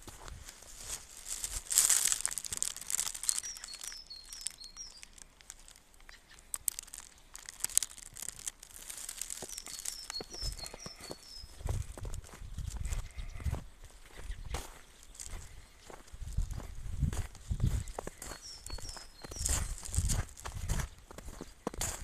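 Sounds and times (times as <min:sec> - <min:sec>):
footsteps crunching in snow: 0:00.0 - 0:22.0
songbird chirping: 0:00.6 - 0:22.0.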